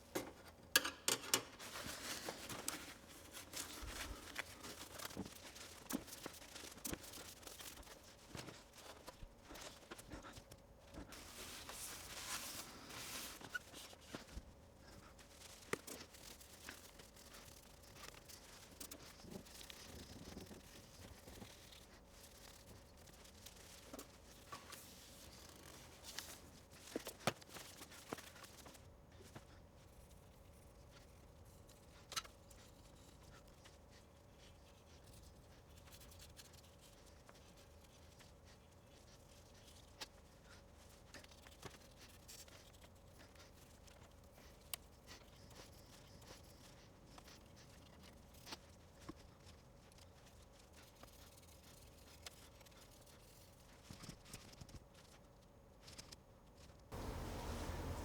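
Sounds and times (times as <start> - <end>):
faint steady hum: 0.0 - 58.0
small clicks and knocks: 0.1 - 1.8
rubbing and scrubbing plastic: 1.6 - 56.1, 56.9 - 58.0.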